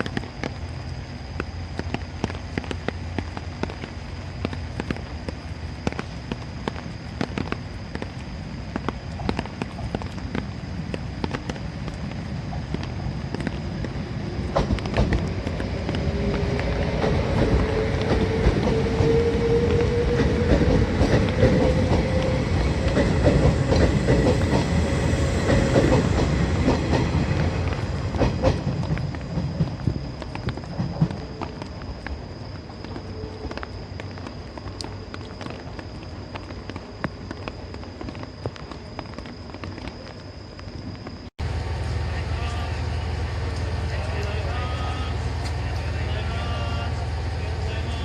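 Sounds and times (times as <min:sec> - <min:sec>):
steady whine: 0:00.0 - 0:48.0
train wheels clickety-clack: 0:01.4 - 0:33.7.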